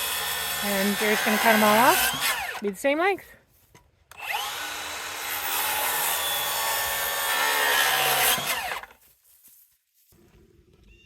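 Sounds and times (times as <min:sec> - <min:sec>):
power saw cutting wood: 0:00.0 - 0:02.7, 0:04.1 - 0:09.0.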